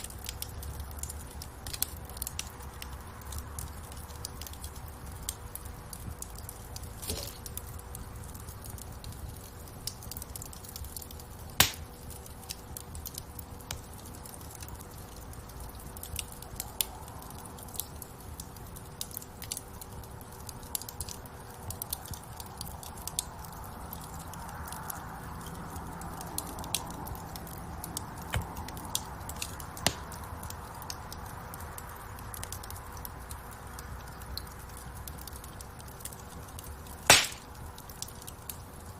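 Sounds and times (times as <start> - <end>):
fire crackling and popping: 0.0 - 38.9
low rush of flame: 24.4 - 30.9.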